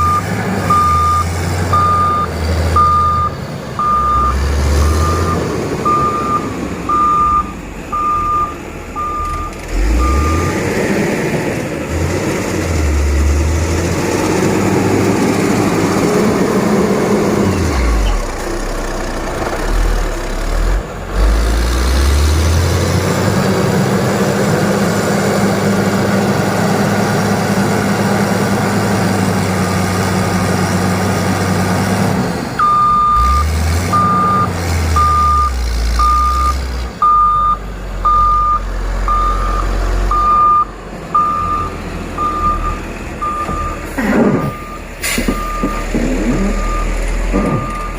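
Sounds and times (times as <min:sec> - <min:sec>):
reversing alarm beeping: 0:00.0 - 0:10.6, 0:32.6 - 0:43.8, 0:44.4 - 0:47.9
diesel engine under load: 0:00.0 - 0:47.9.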